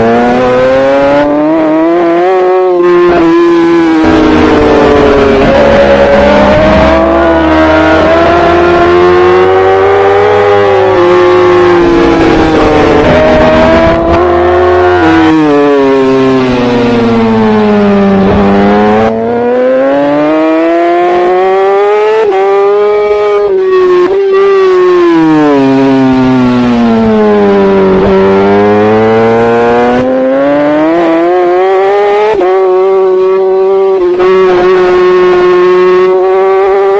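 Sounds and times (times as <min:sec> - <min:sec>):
racing motorcycle engine revving: 0:00.0 - 0:36.9.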